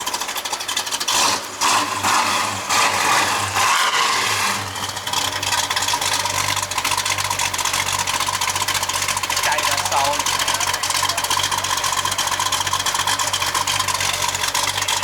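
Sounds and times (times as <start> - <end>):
loud car engine revving and idling: 0.0 - 15.0.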